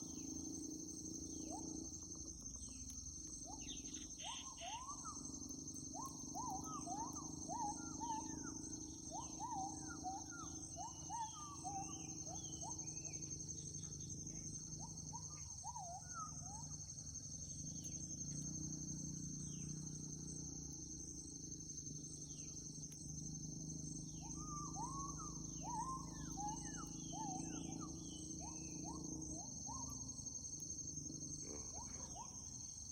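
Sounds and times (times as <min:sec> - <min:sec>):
high insect drone: 0:00.0 - 0:32.9
monkey calls: 0:06.0 - 0:13.2, 0:24.2 - 0:29.9, 0:31.4 - 0:32.6.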